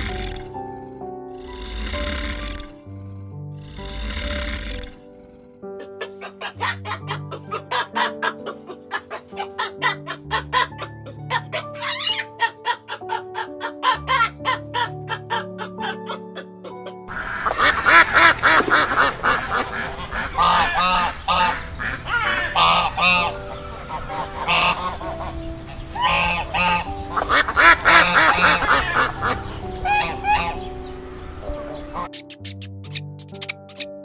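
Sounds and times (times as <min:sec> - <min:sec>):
ducks quacking: 0:05.8 - 0:30.8, 0:31.4 - 0:32.1.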